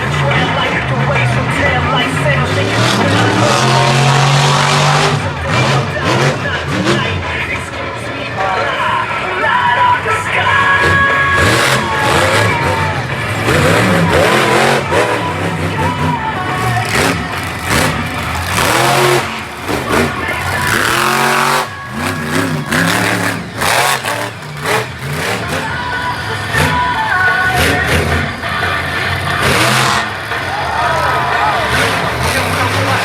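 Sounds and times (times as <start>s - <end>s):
truck engine revving: 0.0s - 33.0s.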